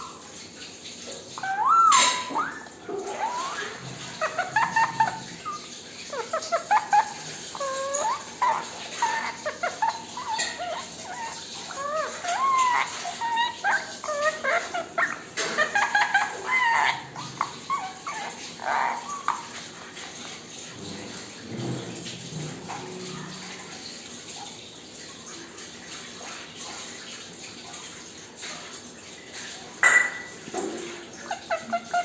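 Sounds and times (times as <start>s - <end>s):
parrot squeaky calls and whistles: 1.4s - 19.9s, 31.1s - 32.0s.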